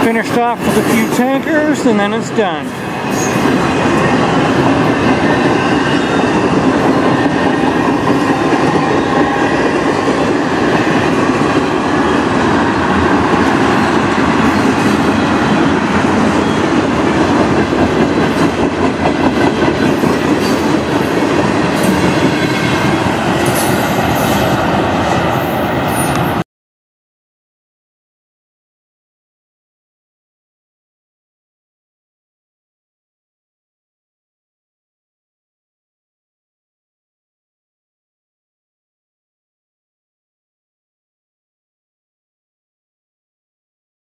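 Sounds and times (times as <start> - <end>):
loud train rumble: 0.0 - 26.4.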